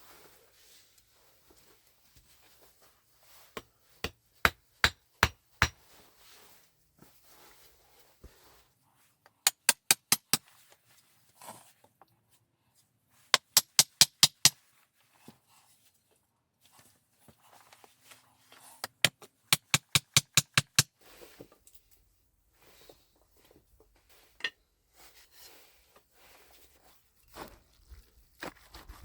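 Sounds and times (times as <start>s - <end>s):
hammer driving nails into wood: 3.6s - 5.8s, 9.5s - 10.4s, 13.3s - 14.6s, 18.8s - 20.9s.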